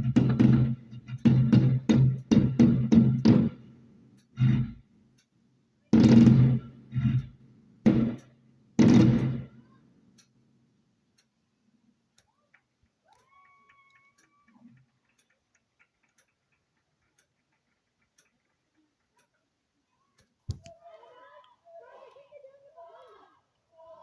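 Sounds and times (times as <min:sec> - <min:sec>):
loud knock: 0:00.0 - 0:03.6, 0:06.0 - 0:07.3, 0:07.9 - 0:08.2, 0:08.8 - 0:09.5
clock ticking: 0:00.0 - 0:05.3, 0:06.0 - 0:10.4, 0:11.1 - 0:11.5, 0:12.1 - 0:19.6.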